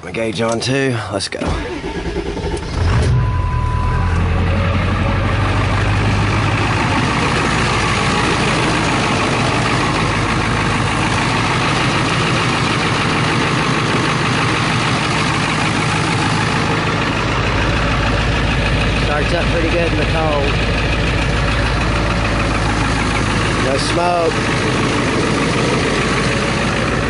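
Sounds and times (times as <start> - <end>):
diesel engine starting and idling: 0.0 - 27.0
short beep: 2.8 - 4.7.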